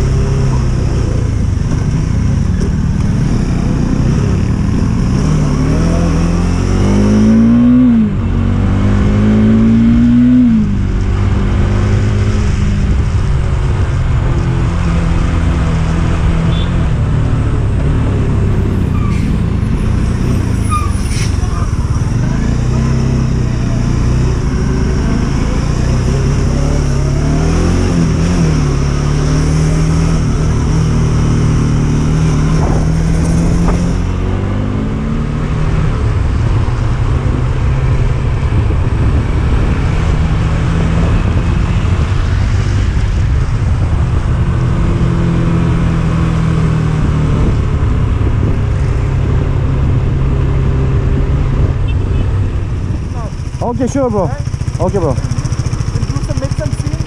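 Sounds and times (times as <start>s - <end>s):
motorcycle engine revving: 0.0s - 57.0s
wind rush: 29.7s - 53.8s.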